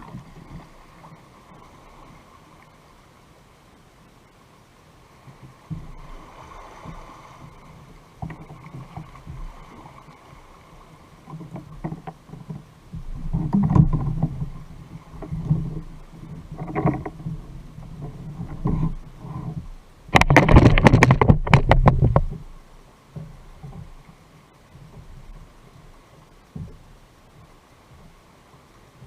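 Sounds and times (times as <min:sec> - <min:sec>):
water sloshing against kayak hull: 0:00.0 - 0:03.5, 0:05.0 - 0:29.0
low thumps: 0:15.2 - 0:22.6.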